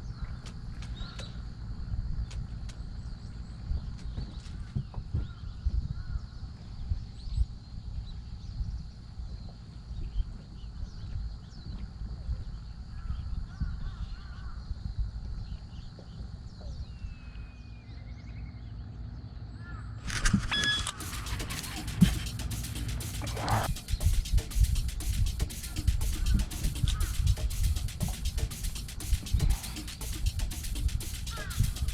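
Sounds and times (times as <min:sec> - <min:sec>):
wind rumble on microphone: 0:00.0 - 0:17.5
faint bird calls: 0:00.0 - 0:24.4, 0:25.0 - 0:31.9
crows cawing: 0:19.6 - 0:20.0, 0:25.7 - 0:27.4, 0:31.2 - 0:31.9.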